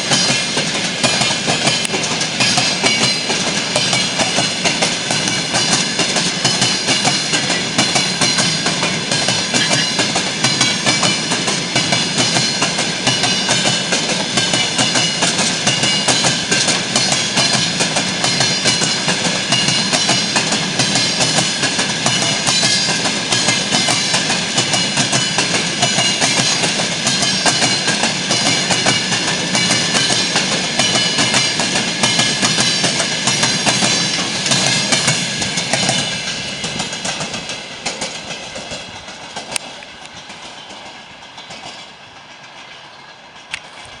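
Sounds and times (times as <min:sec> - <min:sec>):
high metallic wheel squeal: 0:00.0 - 0:13.8, 0:14.4 - 0:35.3
train wheels clattering on track: 0:00.0 - 0:44.0.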